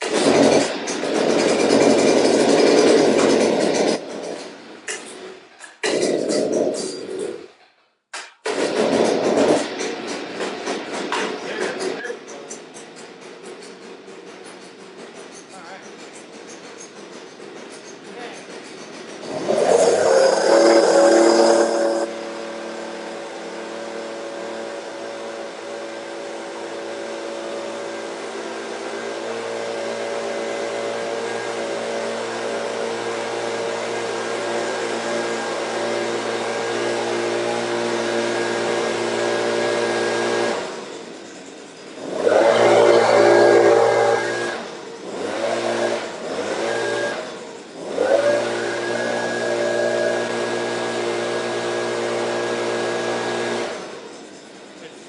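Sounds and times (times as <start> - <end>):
blower engine running: 19.2 - 40.9, 41.9 - 54.2.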